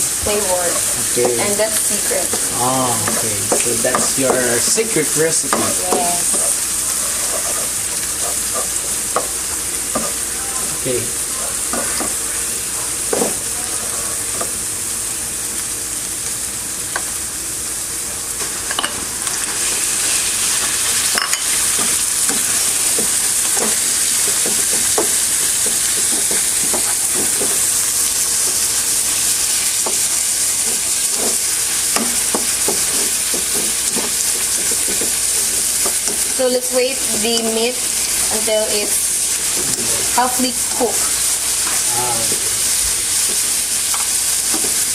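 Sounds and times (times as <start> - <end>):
meat sizzling in hot oil: 0.0 - 44.9
utensil scraping a pan: 2.3 - 9.3.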